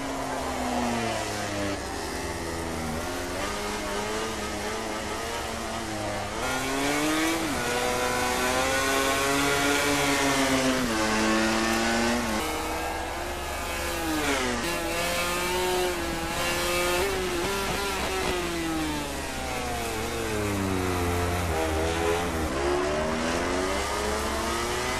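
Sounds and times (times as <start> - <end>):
racing motorcycle engine revving: 0.0 - 24.9.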